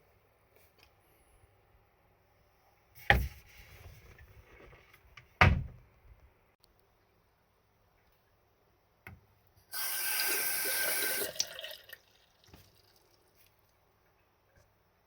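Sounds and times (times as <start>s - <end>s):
water running into basin: 9.7s - 13.5s.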